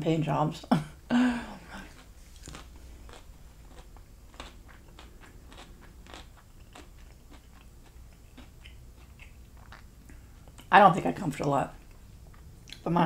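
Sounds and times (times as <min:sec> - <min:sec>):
person chewing food: 0:01.5 - 0:10.7, 0:11.8 - 0:12.9.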